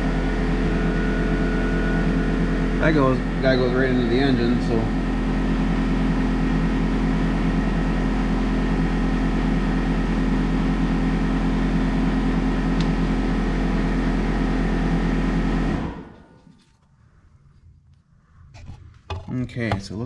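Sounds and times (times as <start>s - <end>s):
air compressor humming: 0.0s - 16.7s.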